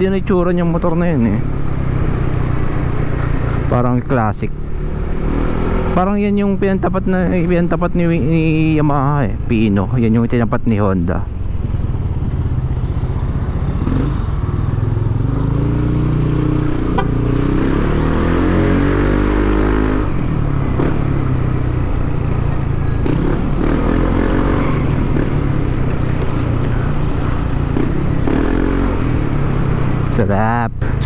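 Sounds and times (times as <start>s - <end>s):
scooter engine accelerating: 11.4s - 30.2s.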